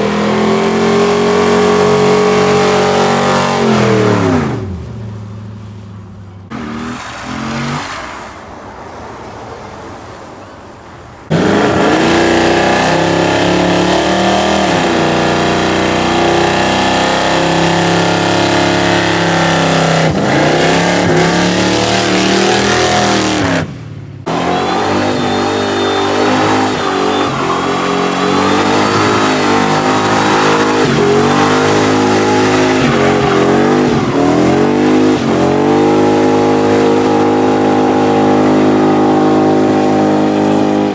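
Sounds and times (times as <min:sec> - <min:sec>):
loud engine revving: 0:00.0 - 0:04.8, 0:06.5 - 0:07.9, 0:11.3 - 0:40.9
car engines accelerating: 0:00.0 - 0:10.2, 0:11.2 - 0:40.9.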